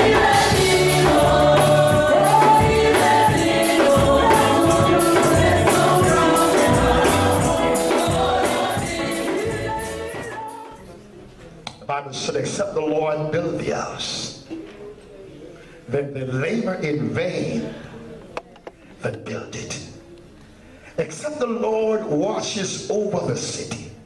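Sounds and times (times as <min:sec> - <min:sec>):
bass: 0:00.0 - 0:10.2
choir singing gospel music: 0:00.0 - 0:10.8
percussion beat: 0:00.0 - 0:10.8.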